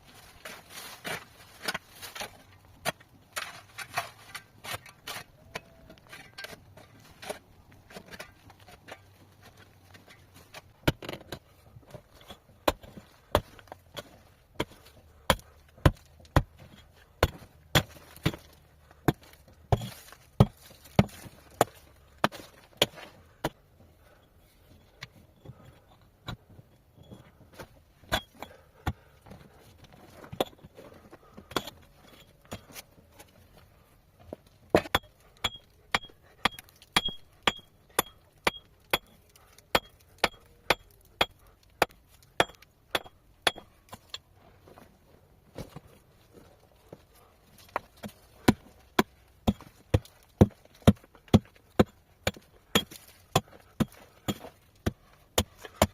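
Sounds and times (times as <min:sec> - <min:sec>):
metal tool striking stone: 0:12.2 - 0:18.5, 0:28.1 - 0:29.0, 0:34.7 - 0:44.2, 0:48.0 - 0:55.9.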